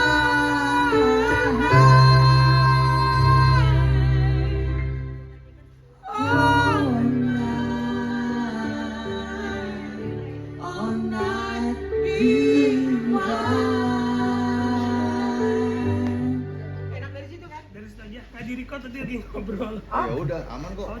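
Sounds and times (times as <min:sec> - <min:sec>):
woman singing slow melody: 0:00.0 - 0:05.3, 0:06.0 - 0:16.9
instrumental backing: 0:00.0 - 0:18.4.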